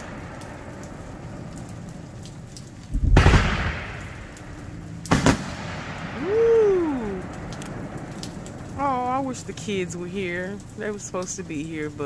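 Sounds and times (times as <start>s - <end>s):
faint firework crackles: 0.0s - 12.0s
steady hiss: 0.0s - 12.0s
firework shell booming: 3.0s - 6.5s.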